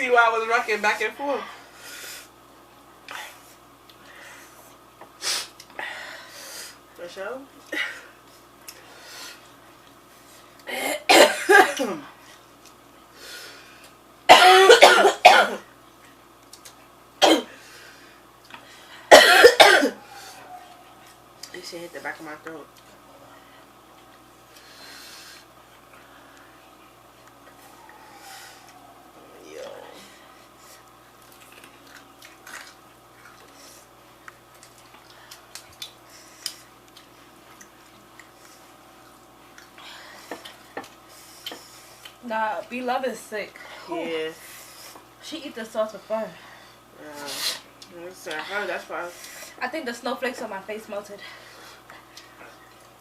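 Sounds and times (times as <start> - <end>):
faint steady hum: 0.0 - 53.0
woman coughing hard: 10.7 - 12.0, 14.3 - 15.7, 17.2 - 17.5, 19.1 - 20.0.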